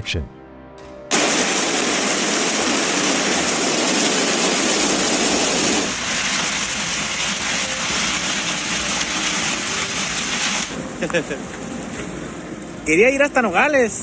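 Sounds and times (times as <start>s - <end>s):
hail and heavy rain pelting: 1.1s - 10.8s.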